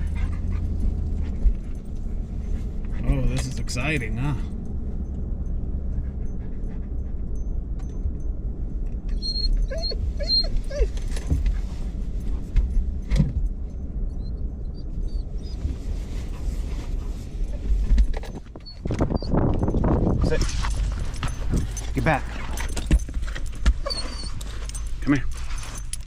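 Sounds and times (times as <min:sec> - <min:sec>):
truck cabin rumble: 0:00.0 - 0:26.0
dog whimpering: 0:09.1 - 0:11.1, 0:14.2 - 0:16.4, 0:23.7 - 0:25.9.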